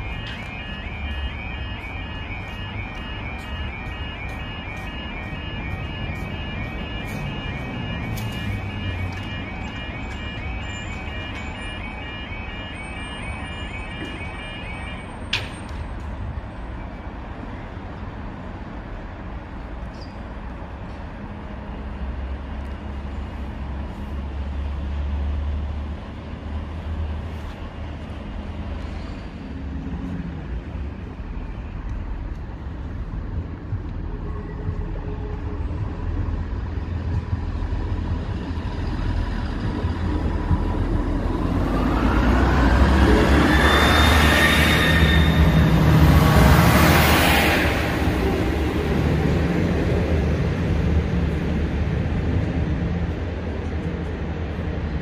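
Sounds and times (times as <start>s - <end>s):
diesel train passing: 0.0s - 55.0s
steady low rumble: 29.2s - 41.8s.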